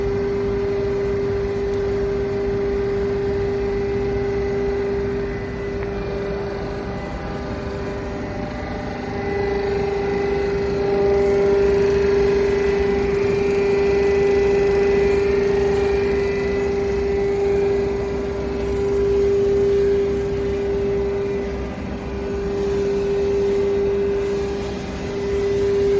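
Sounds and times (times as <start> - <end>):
hydraulic pump whining: 0.0 - 25.9.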